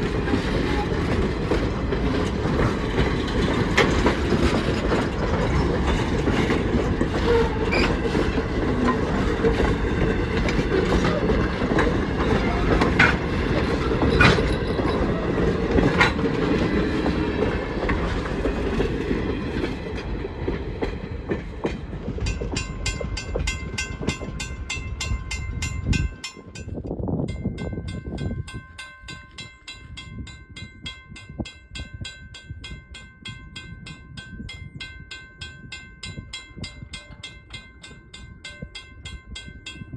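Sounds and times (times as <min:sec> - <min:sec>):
train wheels clacking over rail joints: 0:00.0 - 0:26.9
train rumble: 0:00.0 - 0:39.9.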